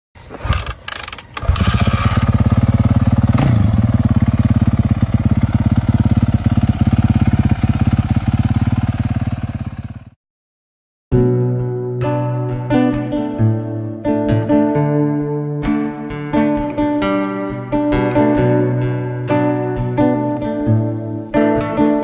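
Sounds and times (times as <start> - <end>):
motocross bike engine running: 0.2 - 10.2.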